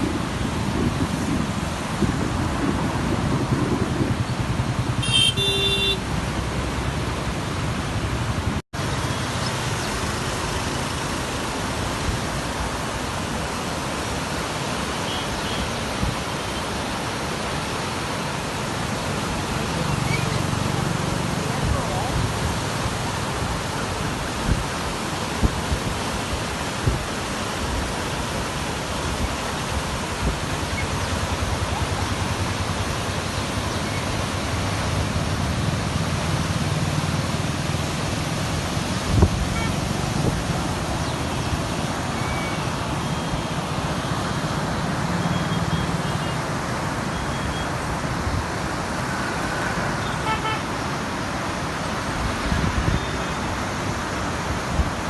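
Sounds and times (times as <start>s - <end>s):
vehicles passing: 0.0s - 25.0s, 27.3s - 55.0s
steady traffic rushing noise: 0.0s - 55.0s
car horn toots: 5.0s - 6.0s.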